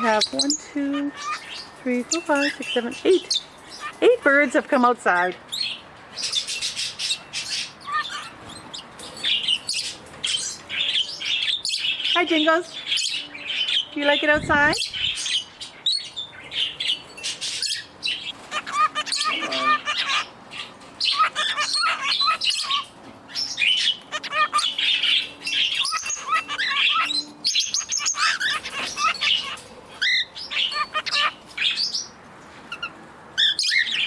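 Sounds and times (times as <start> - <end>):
parakeets chirping and chattering: 0.0 - 34.0.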